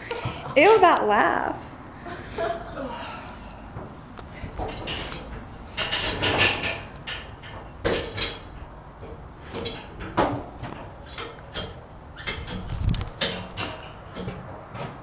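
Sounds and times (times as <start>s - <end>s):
clattering of hard objects: 4.5s - 15.0s.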